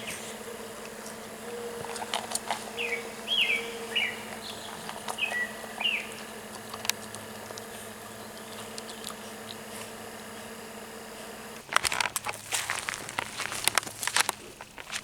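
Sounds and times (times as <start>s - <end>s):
bird chirping: 0.0s - 10.6s
soft clicks: 0.0s - 11.6s
faint hum: 0.0s - 12.3s.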